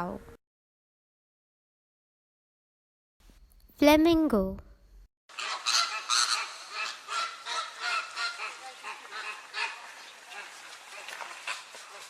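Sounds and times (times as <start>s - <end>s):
flamingos honking: 5.3s - 12.0s.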